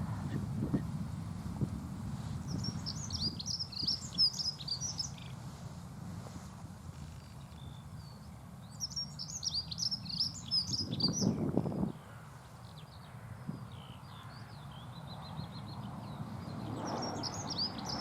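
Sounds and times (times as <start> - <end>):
bird warbling song: 2.5 - 5.4, 7.0 - 18.0.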